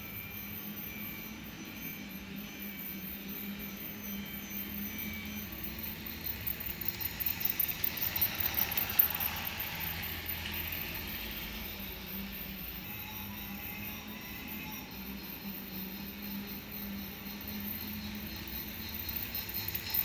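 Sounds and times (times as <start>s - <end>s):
model train motor hum: 2.4s - 20.0s
wheels clicking over rail joints: 5.4s - 11.9s, 17.5s - 20.0s.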